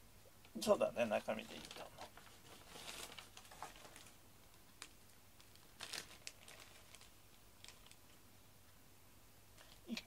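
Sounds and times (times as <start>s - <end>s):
faint crinkles and clicks: 1.2s - 8.2s, 9.5s - 10.0s.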